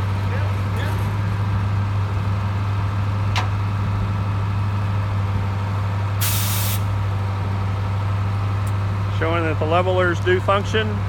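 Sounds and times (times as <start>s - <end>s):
truck engine humming: 0.0s - 11.0s
burst of hiss: 6.2s - 6.9s.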